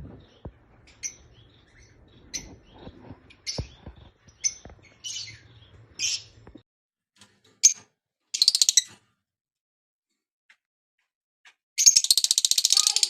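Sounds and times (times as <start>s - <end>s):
lovebirds chattering: 0.0s - 6.6s, 11.8s - 13.0s
lovebirds chirping: 0.0s - 6.6s.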